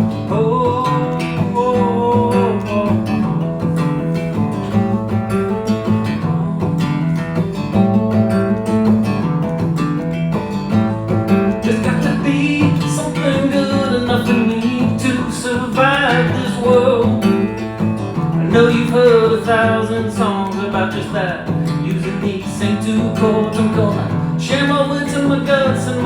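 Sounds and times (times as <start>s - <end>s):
person singing: 0.0s - 3.4s, 5.8s - 7.6s, 11.6s - 26.0s
strummed acoustic guitar: 0.0s - 26.0s.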